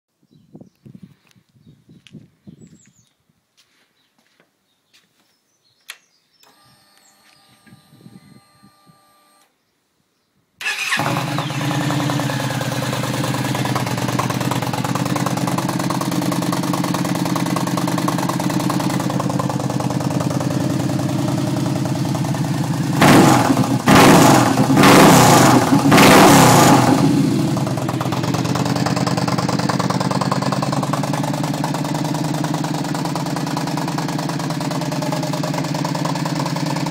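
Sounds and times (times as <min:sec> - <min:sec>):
motorcycle engine starting and idling: 0:06.4 - 0:09.5, 0:10.6 - 0:36.9
motorcycle engine revving: 0:10.6 - 0:36.9.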